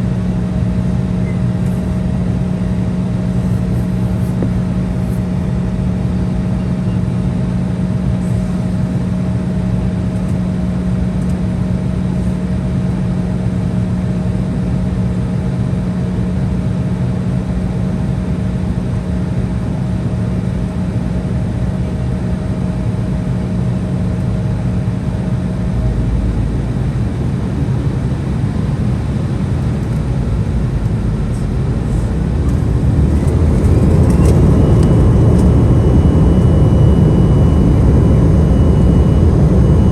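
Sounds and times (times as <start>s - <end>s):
jet cabin rumble: 0.0s - 39.9s
rising engine whine: 22.0s - 39.9s.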